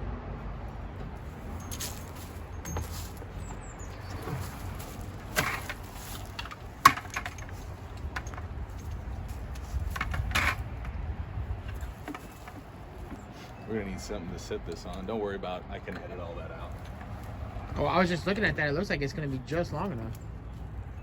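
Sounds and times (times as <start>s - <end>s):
steady low rumble: 0.0s - 12.1s
hoses and fittings clicking: 4.2s - 11.0s.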